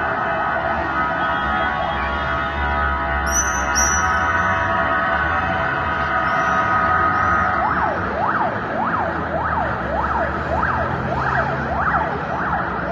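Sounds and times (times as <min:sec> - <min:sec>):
siren yelping: 0:03.3 - 0:12.9.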